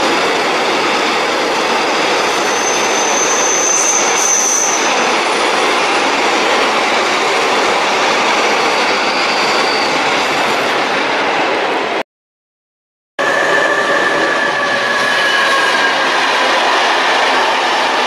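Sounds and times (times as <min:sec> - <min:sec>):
train passing at speed: 0:13.2 - 0:18.0.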